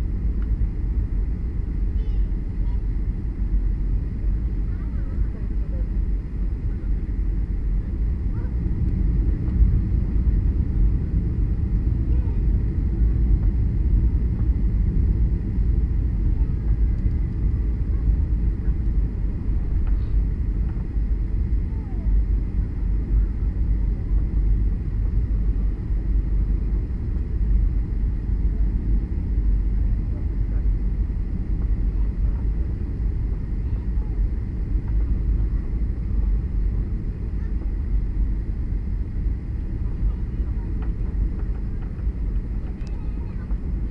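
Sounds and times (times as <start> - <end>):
airplane cabin engine rumble: 0.0 - 43.9.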